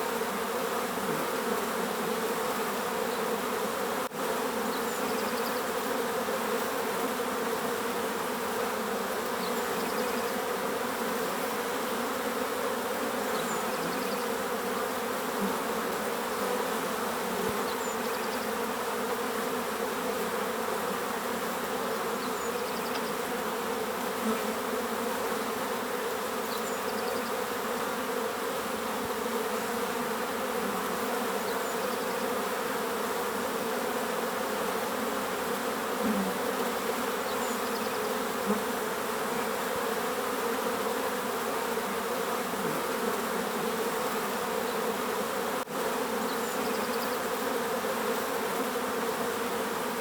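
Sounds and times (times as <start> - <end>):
bees buzzing: 0.0 - 50.0.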